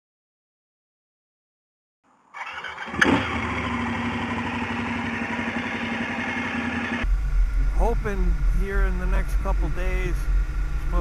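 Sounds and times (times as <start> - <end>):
motorcycle engine starting and idling: 2.3 - 11.0.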